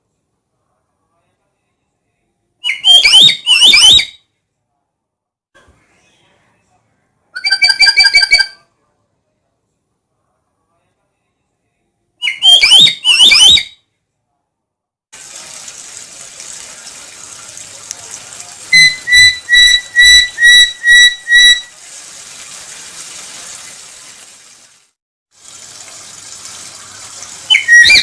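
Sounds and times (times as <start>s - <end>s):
parrot calling: 7.4s - 8.6s, 12.2s - 13.7s, 18.7s - 21.7s, 27.5s - 28.0s.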